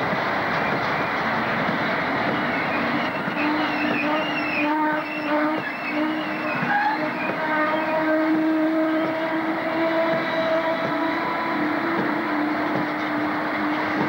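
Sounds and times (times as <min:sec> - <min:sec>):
freight train rumbling: 0:00.0 - 0:14.0
metallic wheel squeals: 0:02.4 - 0:08.2.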